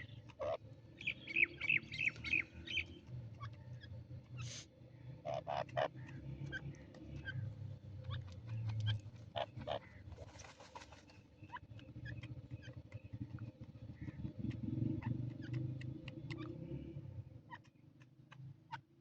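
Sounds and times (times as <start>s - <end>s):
partridge calling: 5.2s - 10.2s, 11.2s - 16.6s.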